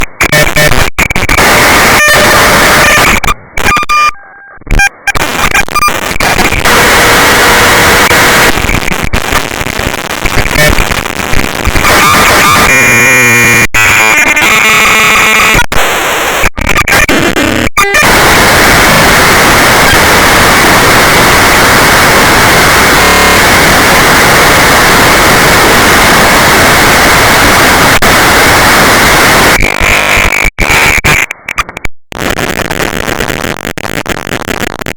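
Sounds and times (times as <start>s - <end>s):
harsh distorted static noise: 0.0s - 34.9s.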